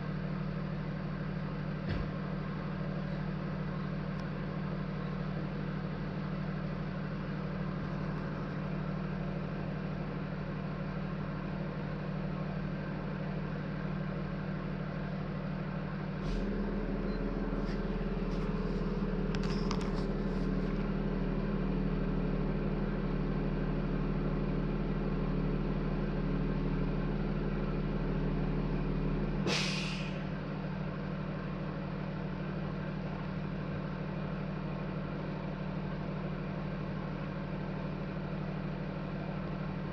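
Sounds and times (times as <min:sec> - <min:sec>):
vehicle engine idling: 0:00.0 - 0:39.9
air brake hiss: 0:29.4 - 0:30.3.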